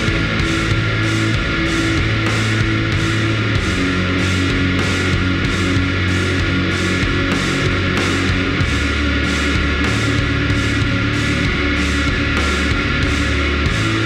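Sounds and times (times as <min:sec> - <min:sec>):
distorted electric guitars: 0:00.0 - 0:14.0
rock drum kit with cymbals: 0:00.0 - 0:14.0.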